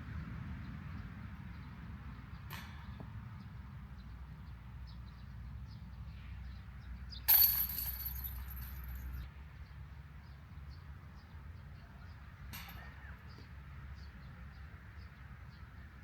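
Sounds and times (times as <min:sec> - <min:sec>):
disc hitting metal basket chains: 0:07.3 - 0:09.2.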